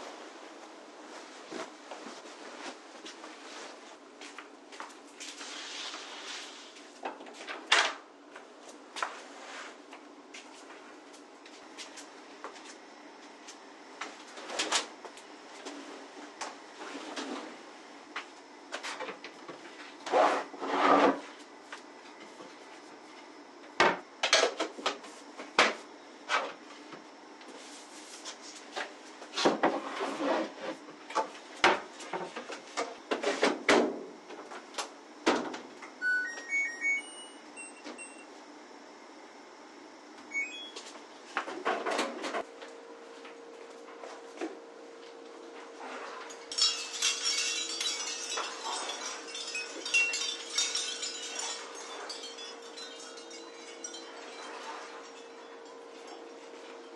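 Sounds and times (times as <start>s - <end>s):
electronic beeps: 40.3s - 40.8s
steady hum: 42.4s - 56.9s
objects knocking and clattering: 46.3s - 56.9s.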